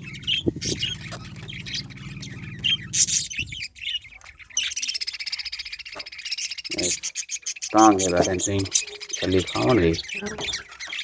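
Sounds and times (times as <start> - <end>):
steady low hum: 0.0 - 3.9
budgerigars chattering: 0.0 - 11.0.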